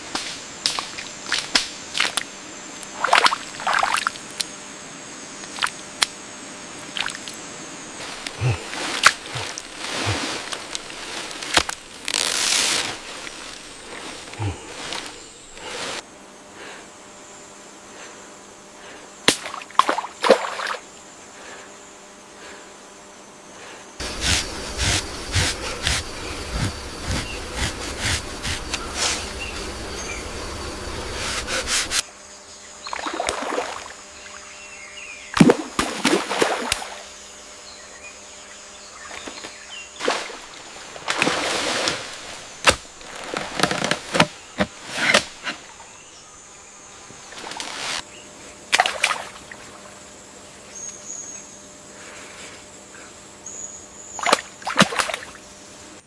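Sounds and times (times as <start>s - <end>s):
faint steady hum: 0.0s - 56.0s
water splashing and sloshing: 0.6s - 4.4s, 6.8s - 7.4s, 8.0s - 16.0s, 19.3s - 20.9s, 32.9s - 34.0s, 35.4s - 37.1s, 39.1s - 45.8s, 48.7s - 50.0s, 54.2s - 55.4s.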